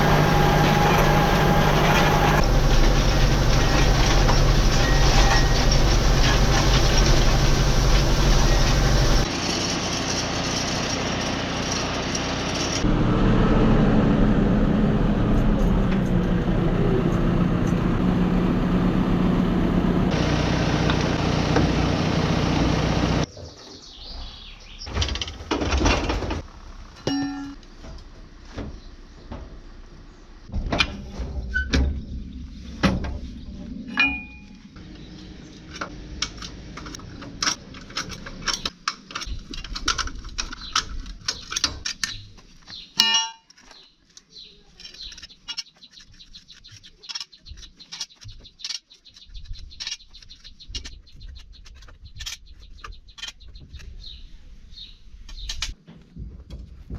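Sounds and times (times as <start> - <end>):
machine engine running: 0.0 - 23.3
bird chirps: 23.3 - 25.0, 43.7 - 55.6.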